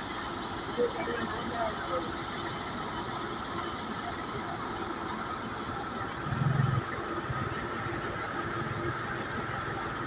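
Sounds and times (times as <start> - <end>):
pump engine running: 0.0 - 10.0
low engine pulse: 5.8 - 10.0.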